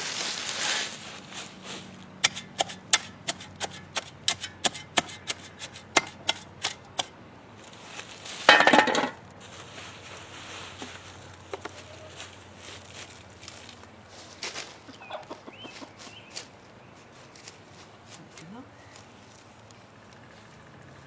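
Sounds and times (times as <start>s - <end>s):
rustling scrape: 0.0s - 6.8s, 7.6s - 14.8s
garden tool clicking and tapping: 2.2s - 7.1s.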